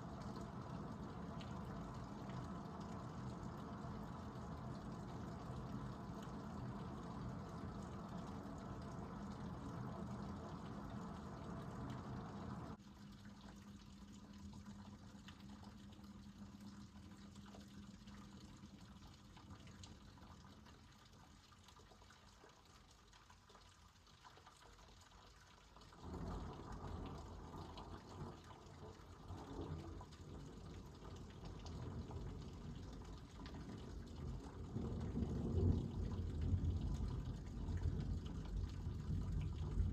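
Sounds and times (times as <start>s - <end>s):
low rumble of thunder: 0.0s - 12.8s, 26.0s - 39.9s.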